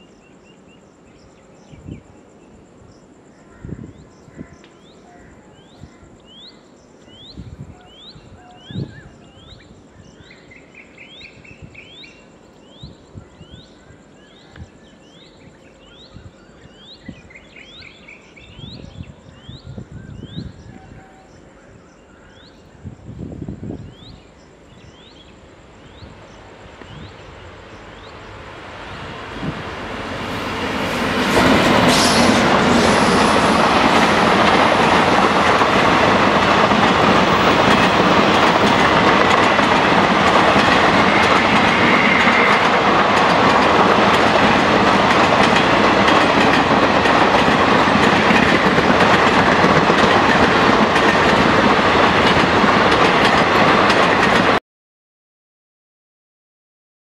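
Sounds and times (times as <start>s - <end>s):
train passing at speed: 4.8s - 20.9s, 22.4s - 54.6s.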